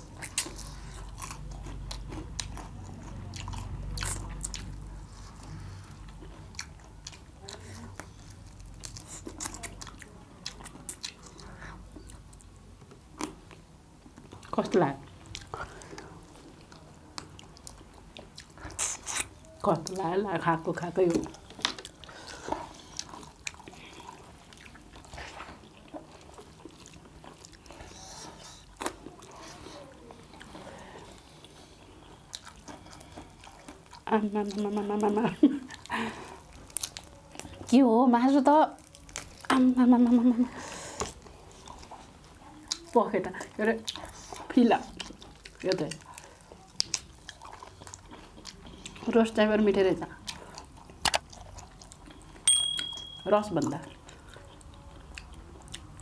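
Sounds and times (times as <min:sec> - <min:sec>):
close chewing and biting meat: 0:00.0 - 0:52.6, 0:53.6 - 0:56.0
wet mouth smacks: 0:51.0 - 0:51.3.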